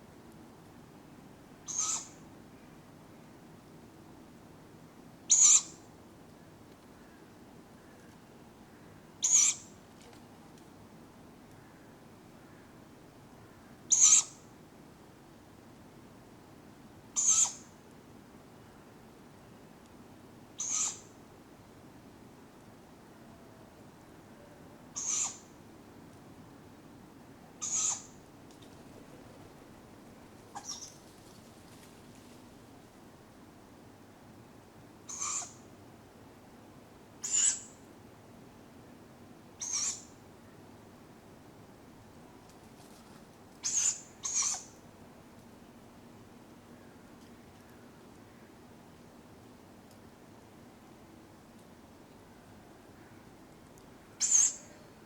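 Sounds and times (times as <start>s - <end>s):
owlets hissing begging calls: 1.7s - 2.1s, 25.0s - 25.4s, 27.6s - 28.1s, 54.2s - 54.8s
owlets screechy begging calls: 1.7s - 2.2s, 20.6s - 21.0s, 25.0s - 25.4s, 27.6s - 28.1s, 30.6s - 31.0s, 37.2s - 37.7s, 39.6s - 40.1s, 43.6s - 44.7s, 54.2s - 54.8s.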